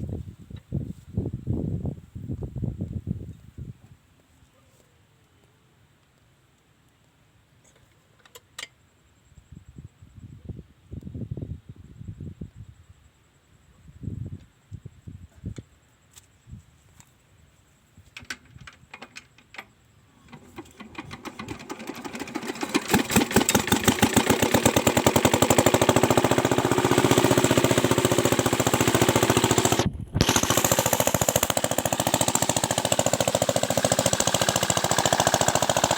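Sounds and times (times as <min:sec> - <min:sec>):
small diesel engine running: 0:20.2 - 0:35.9.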